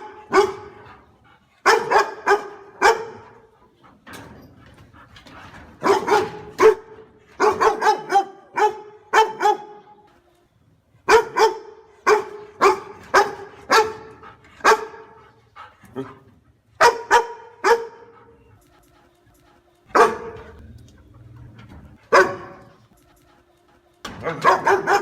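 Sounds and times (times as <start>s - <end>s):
dog barking loudly: 0.0s - 0.9s, 1.6s - 3.5s, 5.8s - 9.9s, 11.0s - 15.2s, 16.8s - 18.1s, 19.9s - 20.6s, 22.0s - 22.8s, 24.2s - 25.0s.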